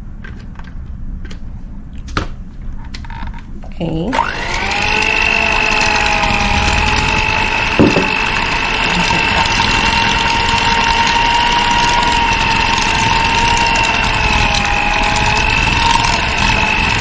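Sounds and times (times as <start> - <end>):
electric hand mixer whining: 4.1 - 17.0.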